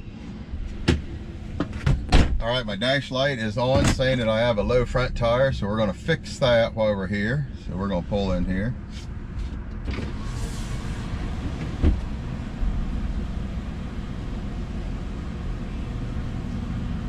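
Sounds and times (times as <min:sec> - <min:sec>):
vehicle engine running low: 0:00.0 - 0:17.0
sharp thump: 0:00.8 - 0:02.4.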